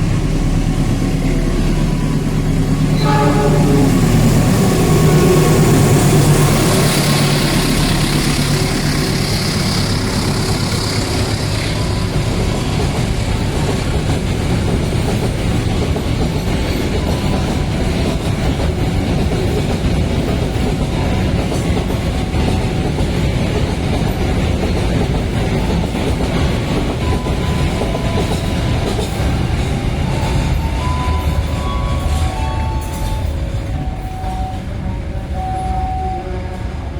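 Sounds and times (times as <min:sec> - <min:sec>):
diesel locomotive engine: 0:00.0 - 0:36.9
wheels clacking over rail joints: 0:06.4 - 0:34.7.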